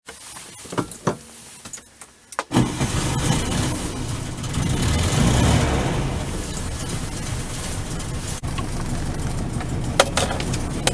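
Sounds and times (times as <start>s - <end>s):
car engine starting and running: 2.5s - 10.9s.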